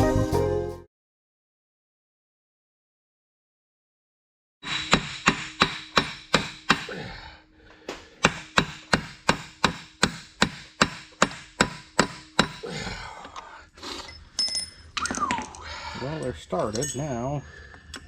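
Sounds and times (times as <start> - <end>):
hammer blows: 4.6 - 7.1, 7.8 - 12.8.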